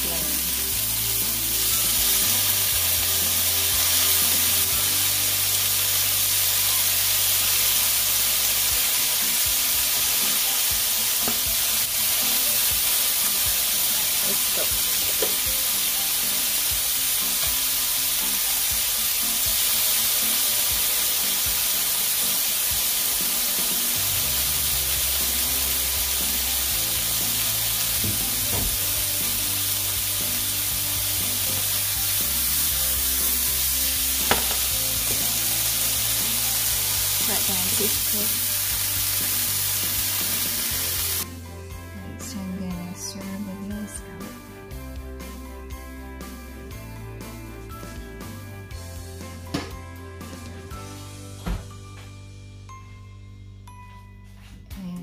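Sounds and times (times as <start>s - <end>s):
vegetables sizzling in a frying pan: 0.0s - 41.3s.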